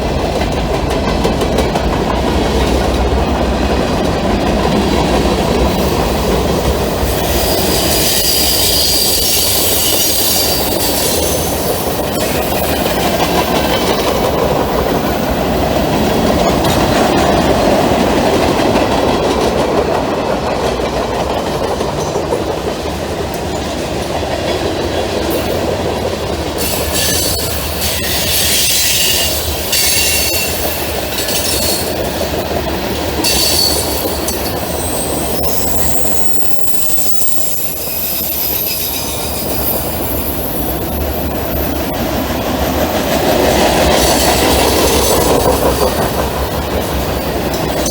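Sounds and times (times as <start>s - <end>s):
freight train rumbling past: 0.0s - 47.9s
high wheel squeal: 7.0s - 12.7s, 26.6s - 32.0s, 33.2s - 41.9s.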